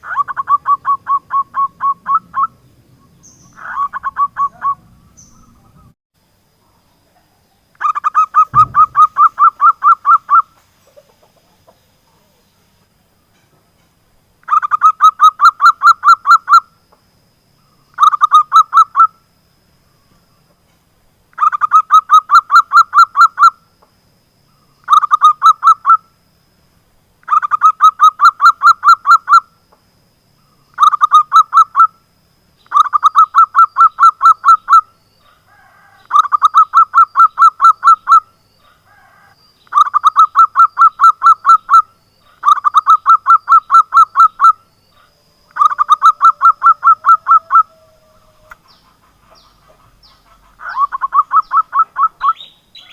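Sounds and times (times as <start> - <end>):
dove cooing: 3.4 - 5.9, 7.8 - 12.3, 32.7 - 52.9.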